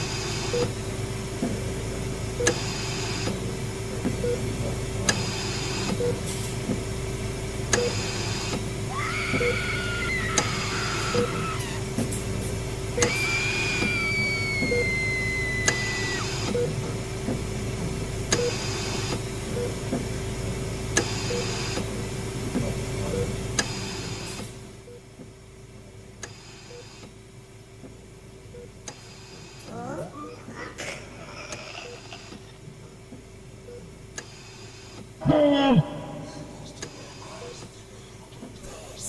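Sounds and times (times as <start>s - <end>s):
electrical hum: 0.0s - 39.0s
short beeps and clicks: 7.8s - 8.0s, 15.7s - 16.8s, 36.6s - 37.6s
falling wailing tone: 13.0s - 16.3s.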